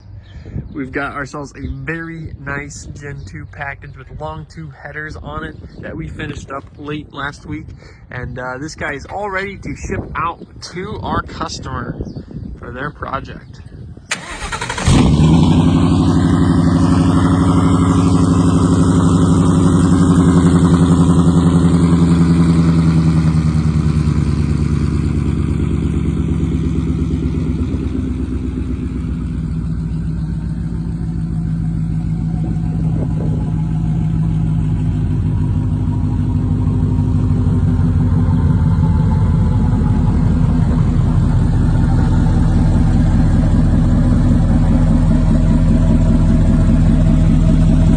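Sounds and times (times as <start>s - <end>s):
engine idling: 14.1s - 47.9s.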